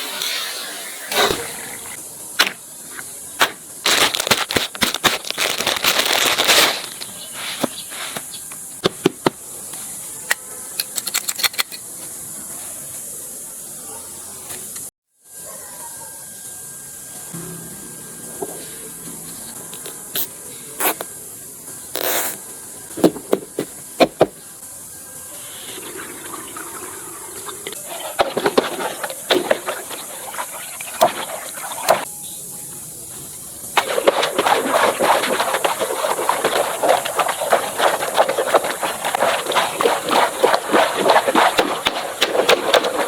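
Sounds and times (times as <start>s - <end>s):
sharp hits and hisses: 0.0s - 5.3s
water splashing: 25.4s - 32.1s, 33.8s - 43.0s
rushing water: 25.6s - 32.1s, 33.8s - 43.0s.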